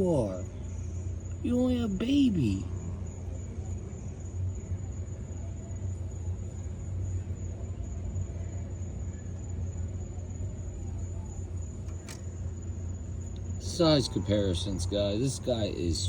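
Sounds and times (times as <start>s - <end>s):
high-pitched insect trill: 0.0s - 16.0s.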